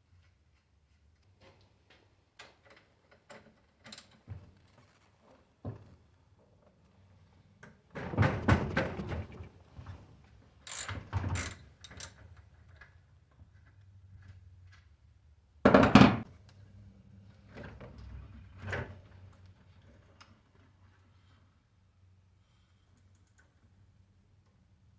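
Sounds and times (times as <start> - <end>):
bicycle parts clunking and rattling: 10.6 - 14.9.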